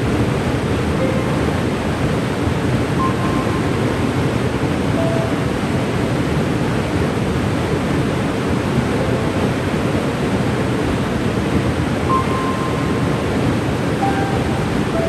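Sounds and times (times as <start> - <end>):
waterfall rushing: 0.0 - 15.0
faint high tone: 14.0 - 15.0.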